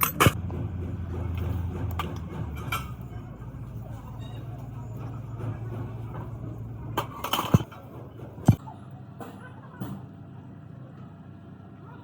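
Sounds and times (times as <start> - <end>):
metal knocks and clinks: 0.0 - 8.6
low machine hum: 0.0 - 12.0.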